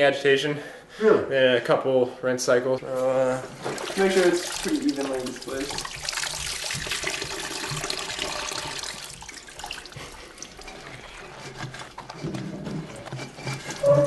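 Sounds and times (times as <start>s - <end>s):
water sloshing in washing machine: 3.4s - 14.0s.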